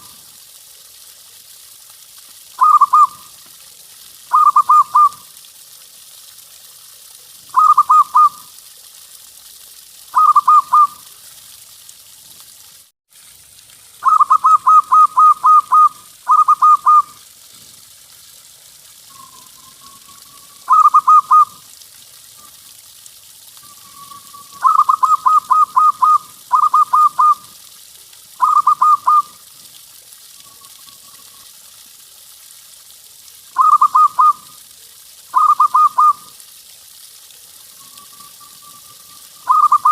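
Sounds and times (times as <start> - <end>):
dove cooing: 2.6 - 3.2, 4.3 - 5.2, 7.6 - 8.4, 10.2 - 11.0, 14.0 - 17.2, 20.6 - 21.6, 24.5 - 27.4, 28.4 - 29.3, 33.6 - 34.4, 35.4 - 36.2, 39.5 - 39.9.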